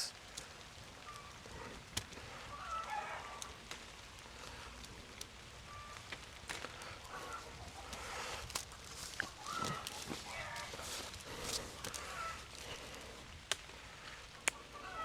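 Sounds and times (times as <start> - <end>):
light rain hissing: 0.0 - 15.0
small clicks and rustles: 0.1 - 14.6
faint bird calls: 6.7 - 8.4, 9.1 - 13.0.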